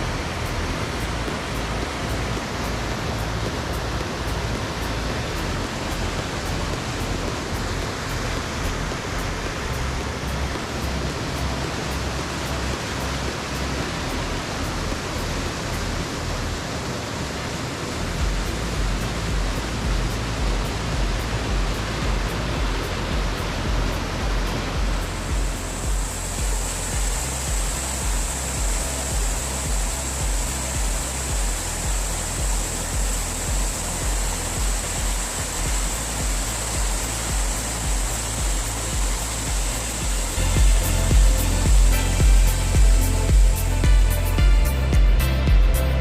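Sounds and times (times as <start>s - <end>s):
low rumble: 0.0s - 46.0s
waterfall rushing: 0.0s - 46.0s.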